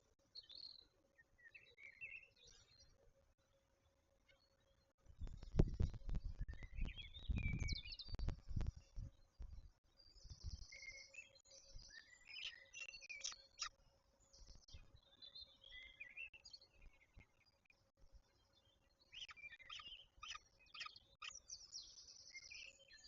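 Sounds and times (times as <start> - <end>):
birds chirping and calling: 5.2 - 9.1, 10.1 - 13.7, 19.0 - 23.0.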